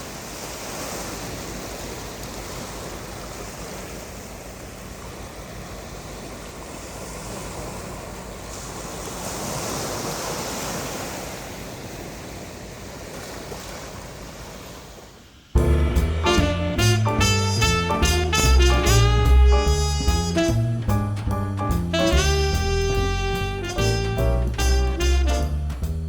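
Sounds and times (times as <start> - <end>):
surf washing onto beach: 0.0 - 15.2.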